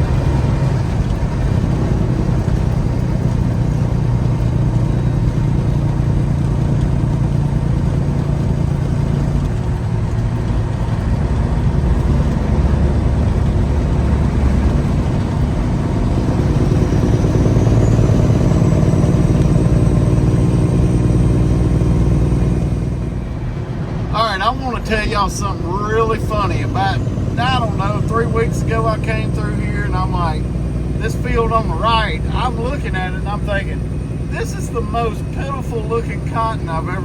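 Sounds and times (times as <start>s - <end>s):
truck diesel engine running: 0.0s - 37.0s.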